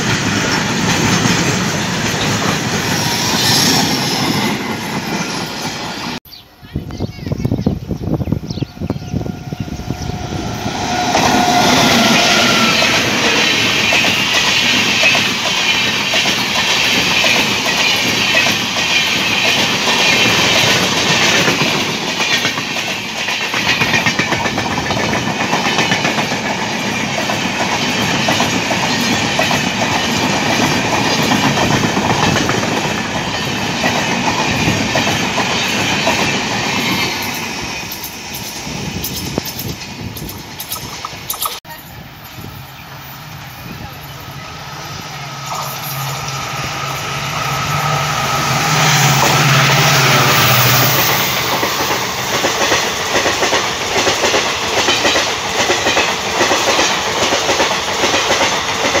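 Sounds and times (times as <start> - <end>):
train wheels rushing on rail: 0.0 - 6.2, 7.0 - 59.0
rapid clickety-clack: 13.2 - 41.6, 50.4 - 59.0.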